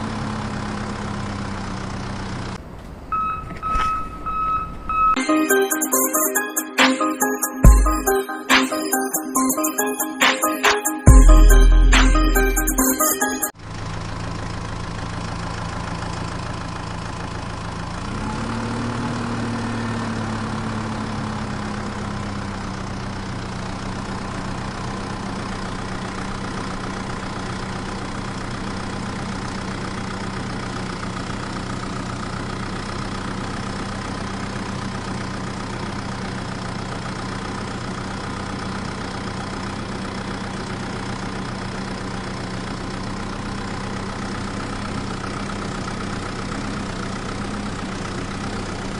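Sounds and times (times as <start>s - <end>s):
tractor engine idling: 0.0s - 4.9s, 13.6s - 18.2s, 20.2s - 48.9s.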